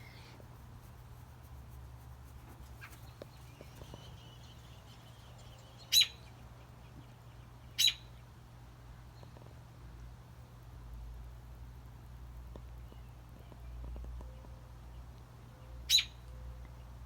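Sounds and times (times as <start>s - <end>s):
faint thin drawn-out bird call: 0.0s - 0.6s
bird chirping: 2.5s - 8.2s.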